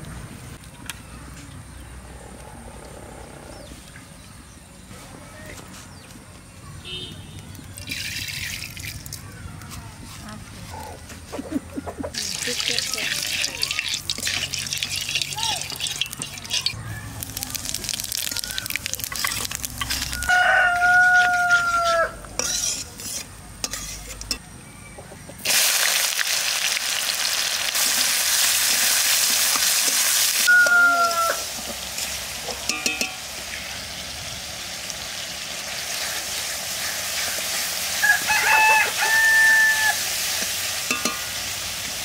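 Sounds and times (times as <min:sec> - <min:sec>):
onions sizzling in oil: 0:12.2 - 0:24.1, 0:25.4 - 0:42.0
rooster crowing: 0:20.1 - 0:22.2, 0:30.4 - 0:31.6, 0:38.0 - 0:40.1.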